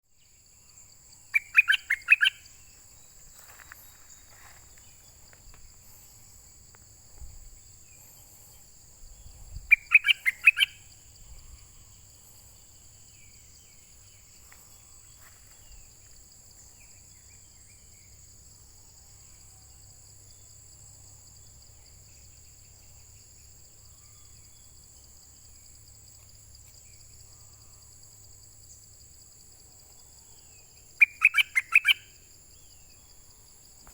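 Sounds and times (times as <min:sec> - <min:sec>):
songbird call: 0:00.2 - 0:05.2, 0:07.2 - 0:12.1, 0:29.8 - 0:33.2.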